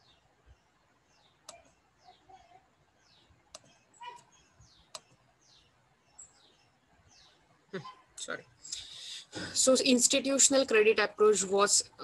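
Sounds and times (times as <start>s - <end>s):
faint bird chirps: 0.0s - 9.2s
sharp clicks: 3.5s - 5.2s.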